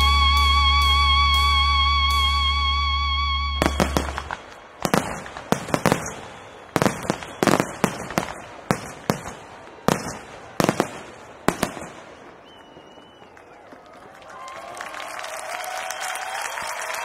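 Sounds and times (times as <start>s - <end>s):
fireworks bursting: 3.6s - 13.7s.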